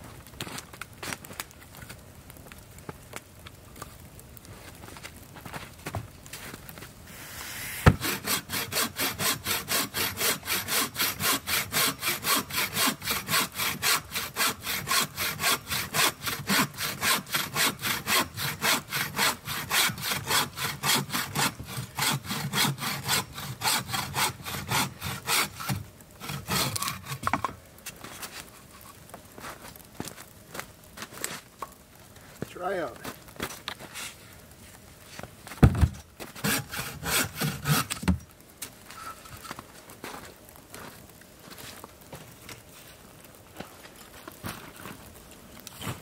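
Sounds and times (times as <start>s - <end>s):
hand saw cutting wood: 7.1s - 27.5s, 36.3s - 38.2s
sharp knock: 7.8s - 8.1s.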